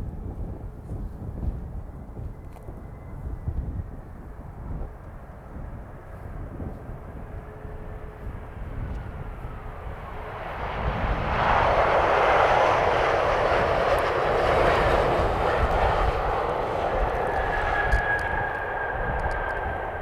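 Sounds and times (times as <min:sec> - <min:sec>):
low wind rumble: 0:00.0 - 0:20.0
jet engines rushing: 0:06.9 - 0:20.0.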